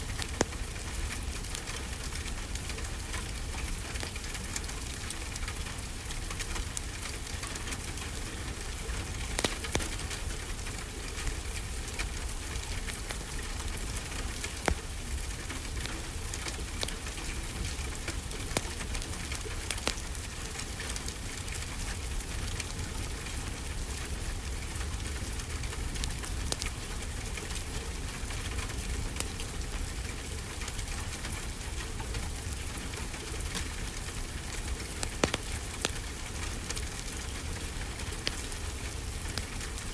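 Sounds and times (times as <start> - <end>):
rain hiss: 0.0 - 39.9
wood fire crackling: 0.0 - 39.9.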